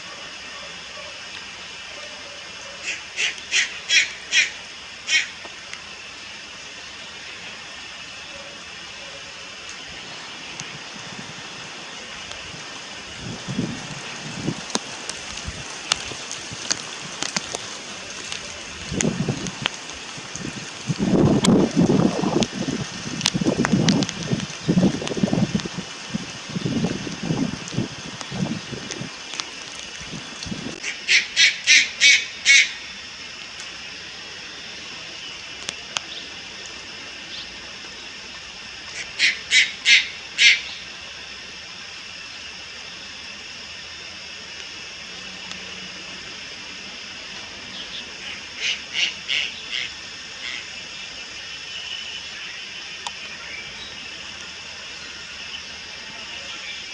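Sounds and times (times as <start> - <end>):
steady hiss: 0.0 - 56.9
heron harsh rasping calls: 2.8 - 5.3
faint clicks: 10.5 - 10.9, 13.8 - 30.9, 53.0 - 53.2.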